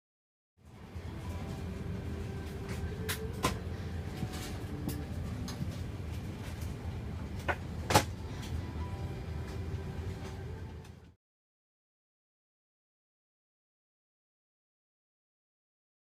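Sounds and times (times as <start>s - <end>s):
steady low rumble: 0.6s - 11.2s.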